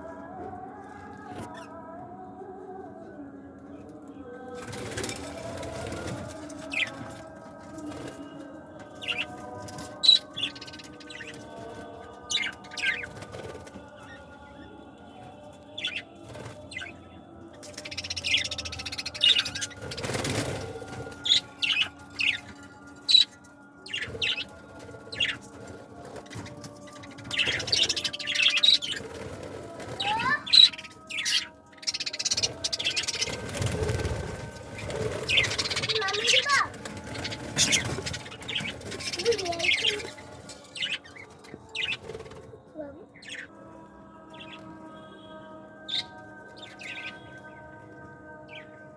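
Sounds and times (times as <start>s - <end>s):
pet birds chirping: 17.7s - 24.5s, 26.2s - 42.0s, 42.8s - 43.5s
bird wings fluttering: 32.2s - 40.9s.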